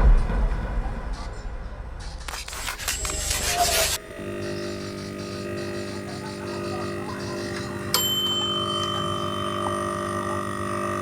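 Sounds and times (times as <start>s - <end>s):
low electrical hum: 0.0s - 11.0s
lower steady tone: 4.0s - 11.0s
multimeter beep: 4.4s - 10.7s.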